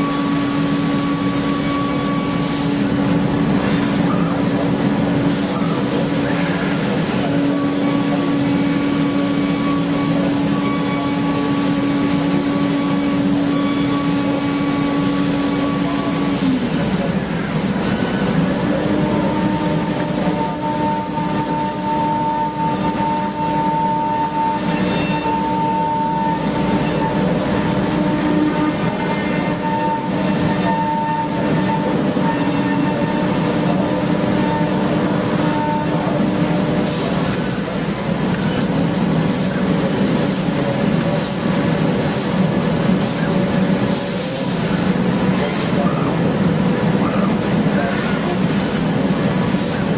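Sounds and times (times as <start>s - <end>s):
factory machining noise: 0.0s - 49.9s
machine hum: 0.0s - 49.9s.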